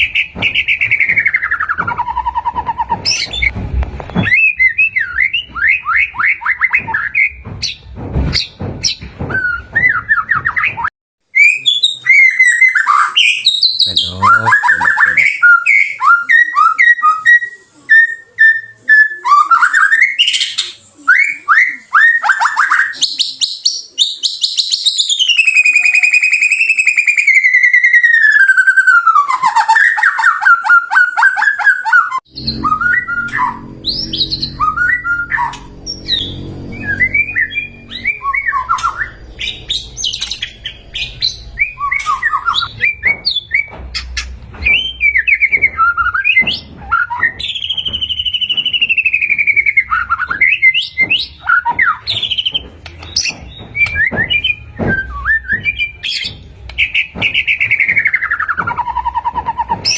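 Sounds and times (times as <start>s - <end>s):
bird singing trills and whistles: 8.4s - 59.9s
low rumble: 32.3s - 43.3s.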